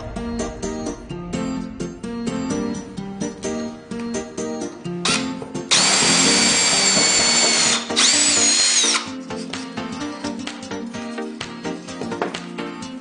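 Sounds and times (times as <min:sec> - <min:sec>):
guitar background music: 0:00.0 - 0:13.0
power drill boring into wood: 0:05.1 - 0:09.1.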